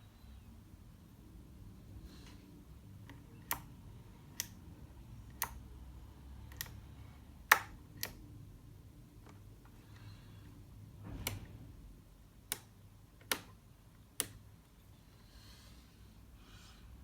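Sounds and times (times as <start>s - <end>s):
sharp clicks of radio controls: 12.4s - 14.5s.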